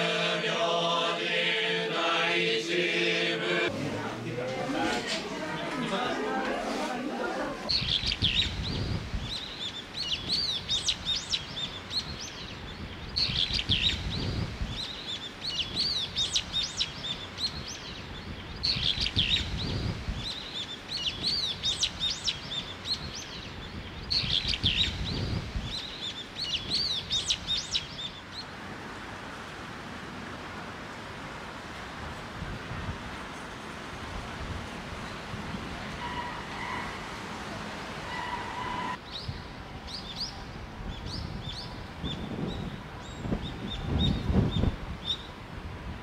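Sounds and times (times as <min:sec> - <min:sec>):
bird chirps and trills: 0:07.7 - 0:28.5.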